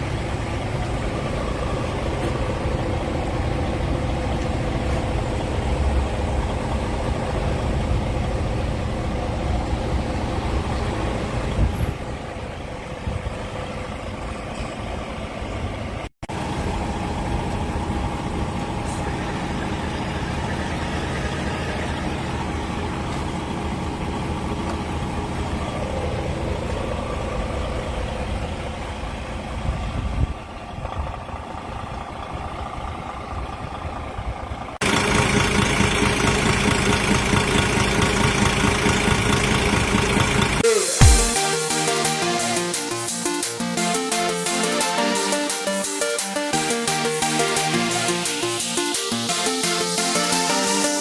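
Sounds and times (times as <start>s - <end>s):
diesel engine idling: 0.0s - 51.0s.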